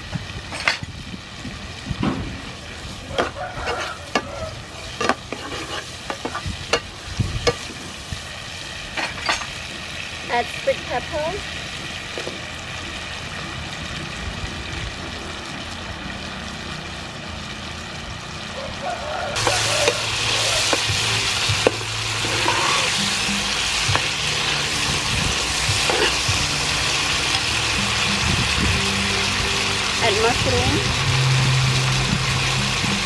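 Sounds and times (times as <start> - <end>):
food sizzling in a pan: 0.0 - 33.0
knocks of food being stirred: 2.6 - 7.8.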